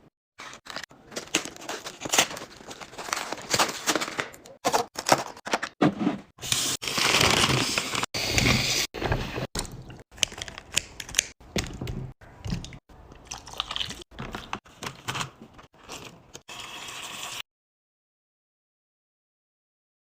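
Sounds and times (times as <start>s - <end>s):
containers and packaging handled: 0.4s - 8.6s, 9.2s - 16.4s.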